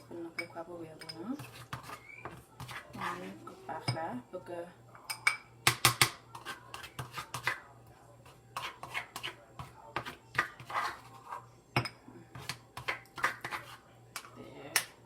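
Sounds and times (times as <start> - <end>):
utensils and dishes clinking: 5.0 - 7.6.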